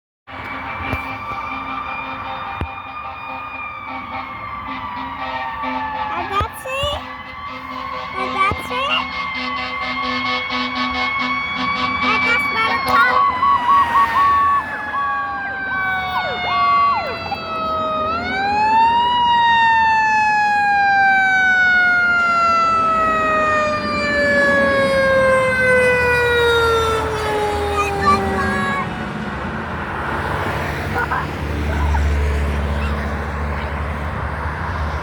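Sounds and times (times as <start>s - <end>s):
fire truck siren wailing: 0.3s - 35.0s
short horn blasts: 7.2s - 13.3s.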